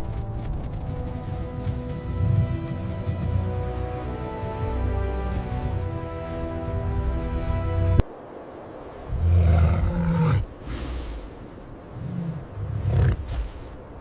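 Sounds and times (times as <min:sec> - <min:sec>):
background music: 0:00.0 - 0:08.0
large animal growling: 0:09.1 - 0:11.1, 0:11.9 - 0:13.6.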